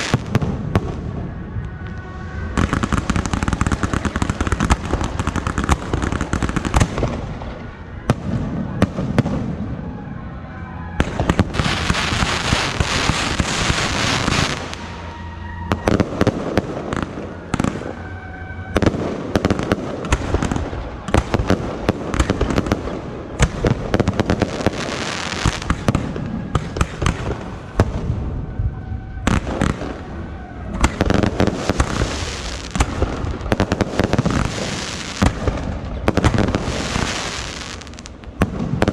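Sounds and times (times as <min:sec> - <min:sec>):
fireworks crackling: 0:00.0 - 0:10.0, 0:10.9 - 0:38.9
firework bangs: 0:00.0 - 0:10.1, 0:10.9 - 0:38.9.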